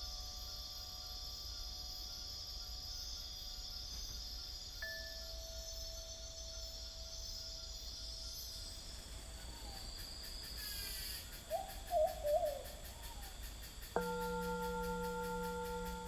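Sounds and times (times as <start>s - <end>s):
insects chirring: 0.0s - 16.0s
singing bowl ringing: 4.8s - 7.8s, 14.0s - 16.0s
owl hooting: 10.6s - 16.0s.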